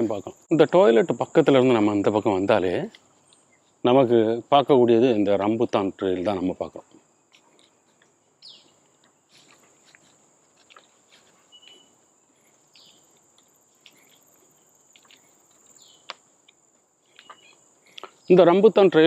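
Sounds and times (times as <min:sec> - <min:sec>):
high insect drone: 0:00.0 - 0:19.0
short bird chirps: 0:11.5 - 0:11.9.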